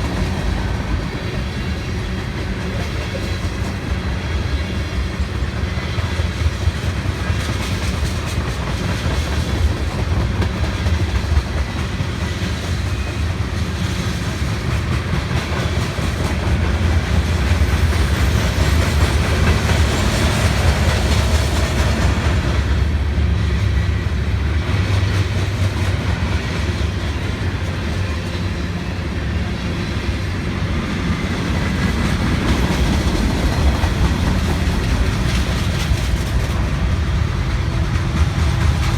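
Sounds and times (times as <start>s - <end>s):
freight train rumbling past: 0.0s - 38.9s
wheels clacking over rail joints: 31.3s - 38.9s.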